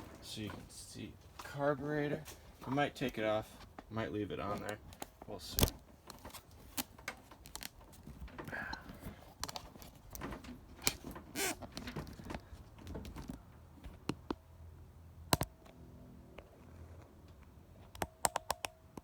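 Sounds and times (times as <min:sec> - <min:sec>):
handling noise clicks and knocks: 0:02.6 - 0:14.4.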